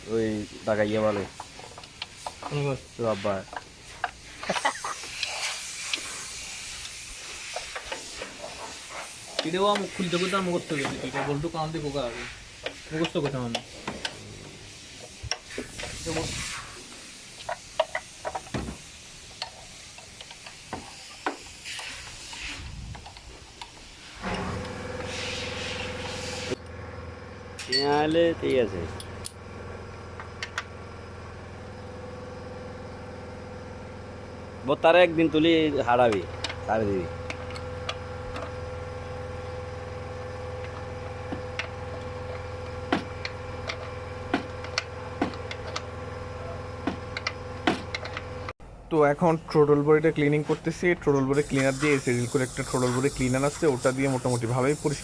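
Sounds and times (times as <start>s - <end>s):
steady machine hum: 22.4s - 55.0s.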